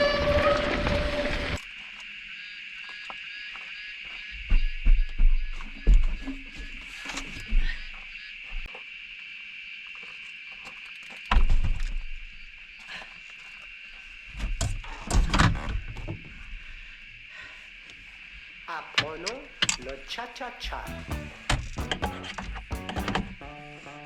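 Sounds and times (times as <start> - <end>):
high insect drone: 0.0 - 24.0
low rumbling bumps: 20.7 - 23.4.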